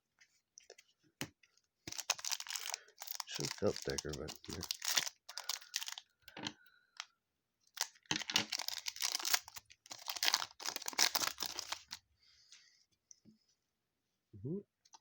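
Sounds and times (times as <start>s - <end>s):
foil wrapper tearing and crinkling: 1.9s - 6.0s, 7.7s - 12.0s.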